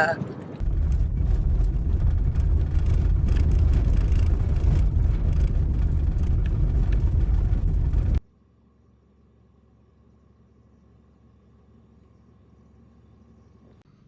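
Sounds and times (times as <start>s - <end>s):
road and engine rumble in car: 0.6s - 8.2s.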